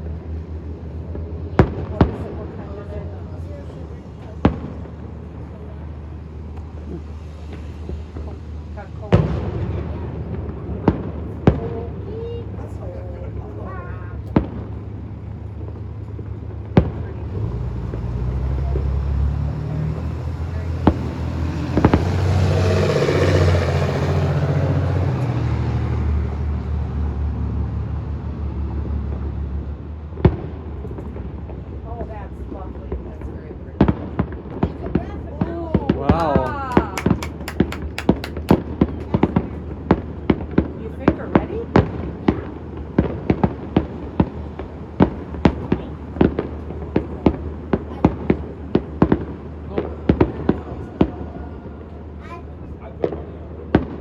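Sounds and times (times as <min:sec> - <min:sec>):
fireworks bangs: 0:00.0 - 0:26.0, 0:28.6 - 0:54.0
vehicle engine humming: 0:09.7 - 0:33.2, 0:36.0 - 0:54.0.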